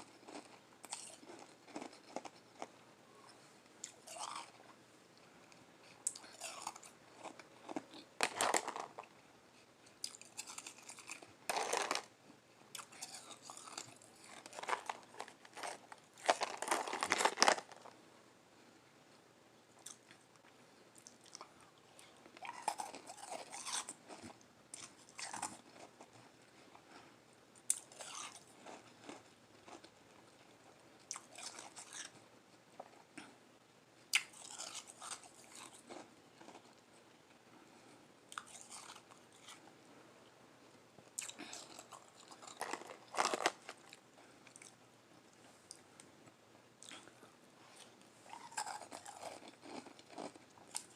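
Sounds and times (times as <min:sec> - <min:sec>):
chewing shaved ice crunches: 0:00.0 - 0:02.8, 0:03.8 - 0:04.7, 0:06.0 - 0:09.1, 0:10.0 - 0:12.1, 0:12.7 - 0:17.9, 0:22.4 - 0:26.1, 0:27.7 - 0:29.9, 0:31.1 - 0:32.2, 0:34.2 - 0:36.8, 0:38.3 - 0:39.7, 0:41.2 - 0:44.8, 0:46.8 - 0:50.9.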